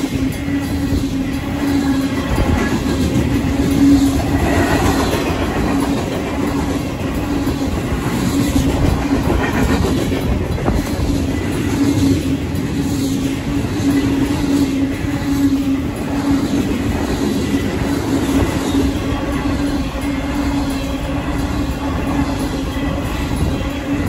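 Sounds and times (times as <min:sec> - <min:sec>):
freight train cars rumbling: 0:00.0 - 0:24.0
wheels clacking over rails: 0:00.0 - 0:24.0
crossing warning bell ringing: 0:10.6 - 0:24.0.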